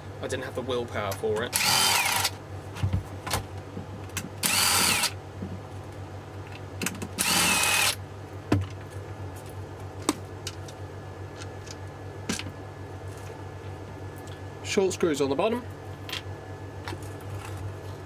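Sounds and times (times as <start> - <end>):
power screwdriver motor whine: 1.6 - 2.3, 4.4 - 5.2, 7.2 - 8.0.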